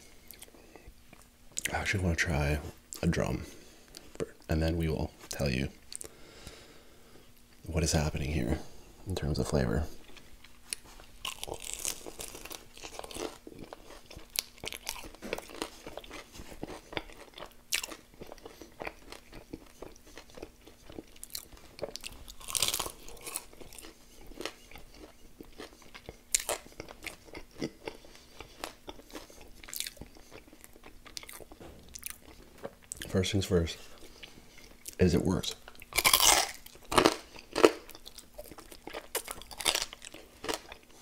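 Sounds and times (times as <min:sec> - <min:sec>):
chewing: 0:09.9 - 0:33.1, 0:33.8 - 0:35.0, 0:35.6 - 0:41.0
crunching crispy chicken skin: 0:10.8 - 0:33.2, 0:35.8 - 0:40.9.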